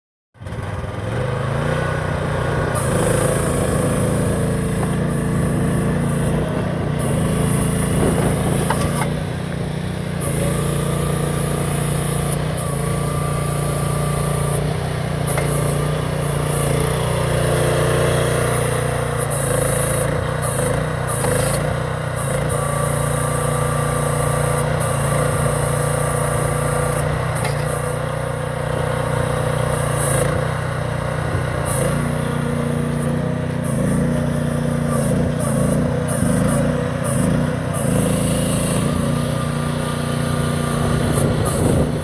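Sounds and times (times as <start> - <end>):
small excavator engine running: 0.4 - 42.0.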